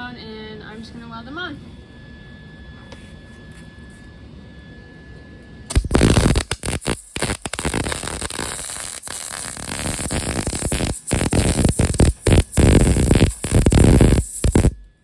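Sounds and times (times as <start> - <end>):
low steady hum: 0.0 - 15.0
welder arc crackling: 5.7 - 15.0.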